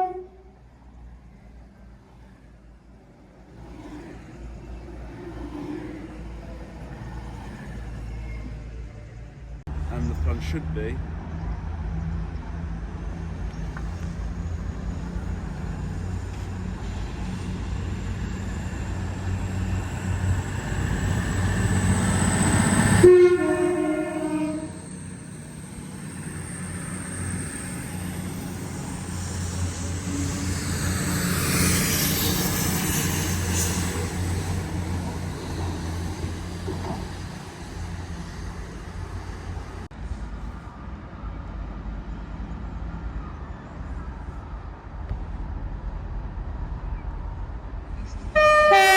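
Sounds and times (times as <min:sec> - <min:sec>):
two-tone train horn: 0:00.0 - 0:00.6, 0:22.9 - 0:25.0, 0:48.4 - 0:48.9
rail noise: 0:00.0 - 0:48.9
train engine rumble: 0:00.0 - 0:48.9.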